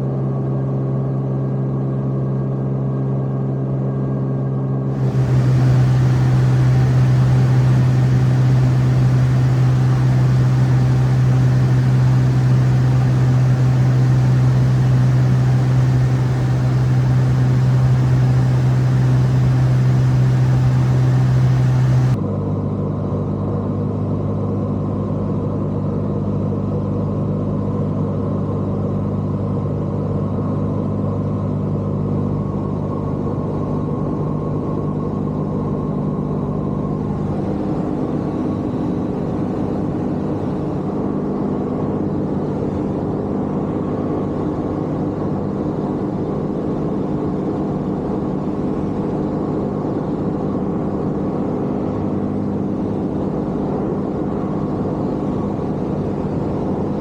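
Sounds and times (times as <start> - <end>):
vehicle engine drone: 5.0 - 22.2.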